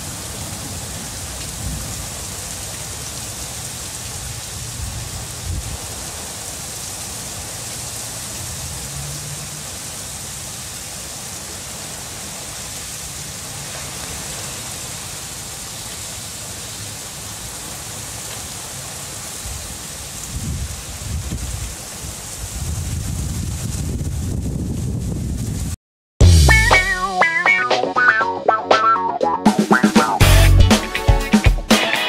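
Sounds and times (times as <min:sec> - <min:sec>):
steady rain falling: 0:00.0 - 0:25.8.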